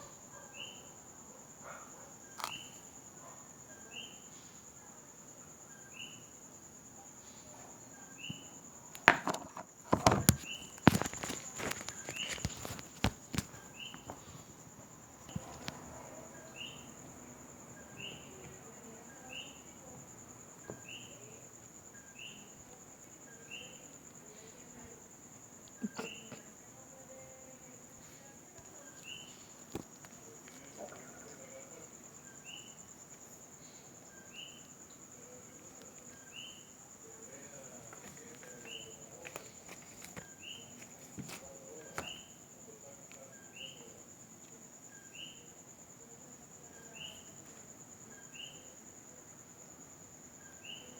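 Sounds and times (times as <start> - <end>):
faint insect trill: 0.0 - 50.9
clicks and taps: 9.0 - 14.3.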